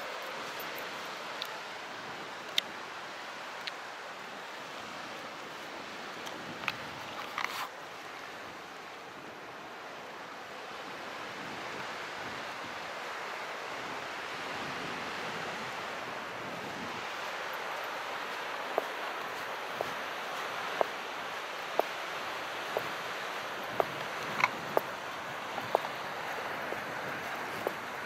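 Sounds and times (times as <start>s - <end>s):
small waves washing: 13.0s - 28.0s.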